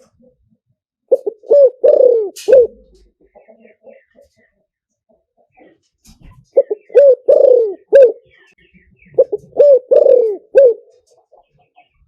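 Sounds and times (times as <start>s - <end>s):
dove cooing: 1.1s - 4.0s, 6.5s - 8.4s, 9.1s - 11.1s.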